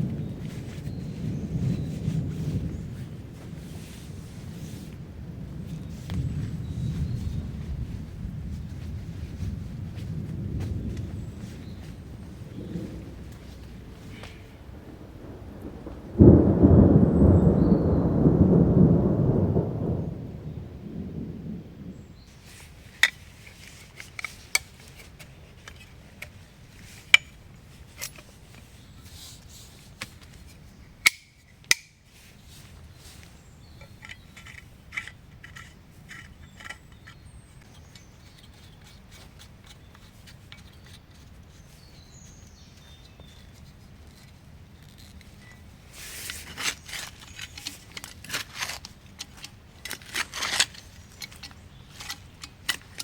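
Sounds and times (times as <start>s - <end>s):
faint low background rumble: 0.0s - 29.0s
rustling: 0.0s - 53.0s
camp gear clicks and clinks: 22.4s - 53.0s.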